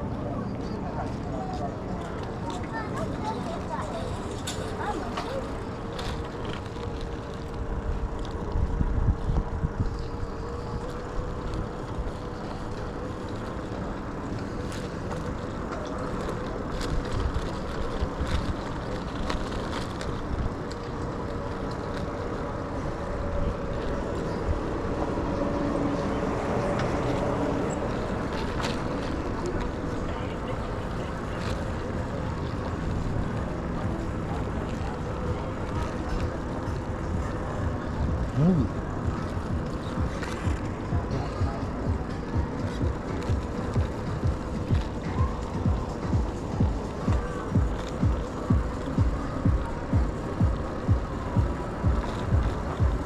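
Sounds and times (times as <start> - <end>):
road rumble: 0.0 - 53.0
wind on microphone: 4.0 - 15.5.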